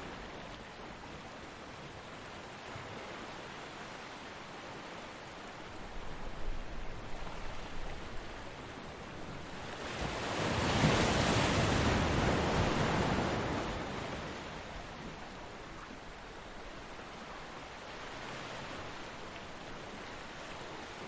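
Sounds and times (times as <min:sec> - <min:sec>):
ocean wave breaking: 0:09.8 - 0:14.3.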